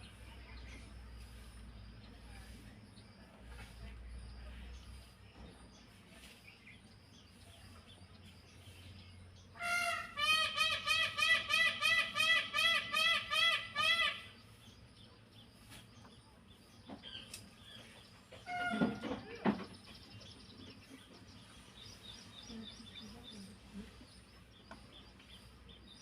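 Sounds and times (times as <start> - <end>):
peafowl calling: 9.5 - 14.6, 17.0 - 19.9.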